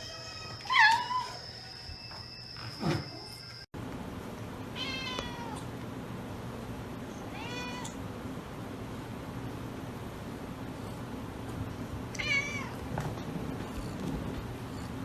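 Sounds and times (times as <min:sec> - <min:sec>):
cat meowing: 0:04.8 - 0:05.6, 0:07.3 - 0:08.0, 0:12.2 - 0:12.8.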